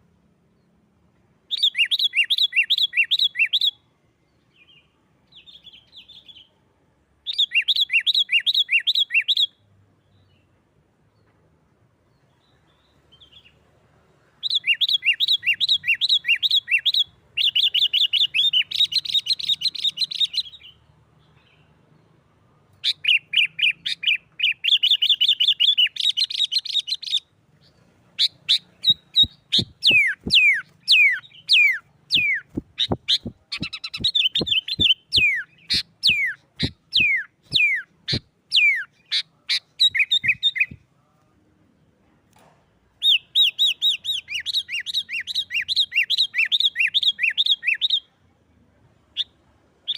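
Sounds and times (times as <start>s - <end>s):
bulbul chattering calls: 14.4s - 20.7s, 22.8s - 40.8s.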